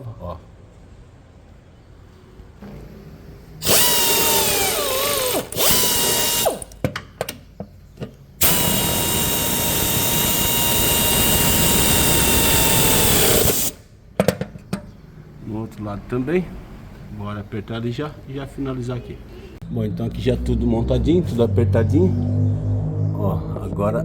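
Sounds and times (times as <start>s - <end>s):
power wrench whining: 3.6s - 6.8s, 8.4s - 13.8s.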